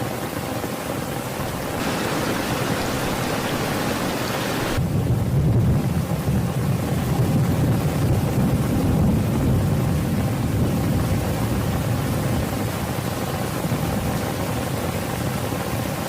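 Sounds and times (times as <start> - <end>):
rain hiss: 1.2 - 5.0.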